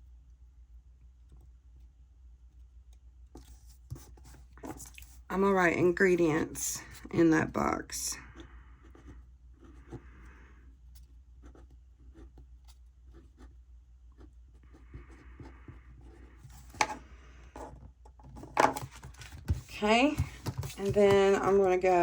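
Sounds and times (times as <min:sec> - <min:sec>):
pen writing on paper: 0:13.1 - 0:13.5.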